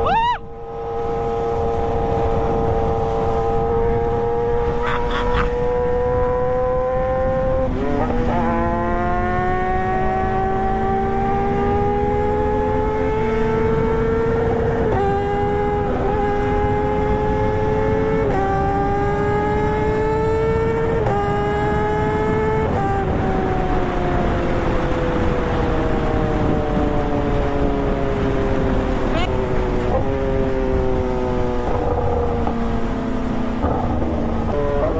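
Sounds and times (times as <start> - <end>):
wind rushing: 0.0 - 10.1
motorcycle engine accelerating: 0.0 - 34.9.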